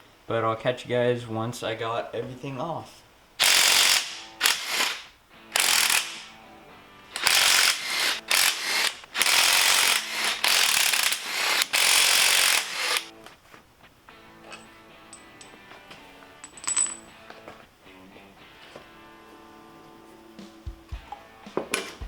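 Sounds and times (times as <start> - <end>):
ratchet wrench clicking: 3.4 - 6.3, 7.2 - 13.1.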